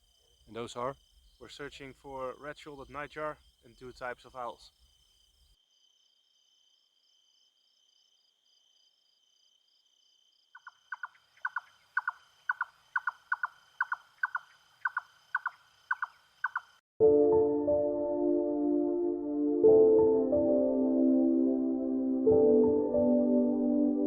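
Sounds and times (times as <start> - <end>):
faint insect trill: 0.0 - 16.8
nightjar singing repeated notes: 0.2 - 4.8
music: 17.0 - 24.0.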